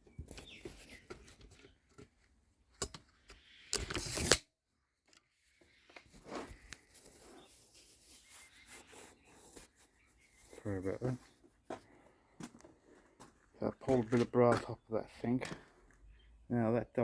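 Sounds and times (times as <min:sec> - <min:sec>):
handling clicks and rustling: 0:00.0 - 0:04.4.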